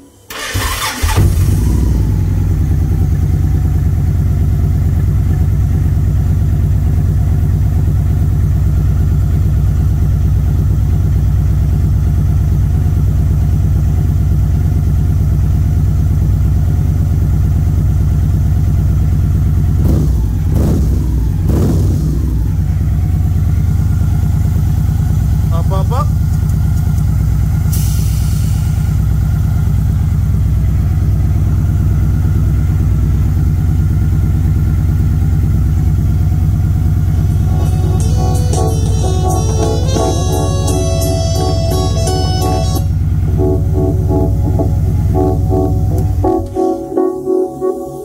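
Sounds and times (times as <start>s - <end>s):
motorcycle engine idling: 0.3s - 46.5s
throttle blips: 37.3s - 48.0s.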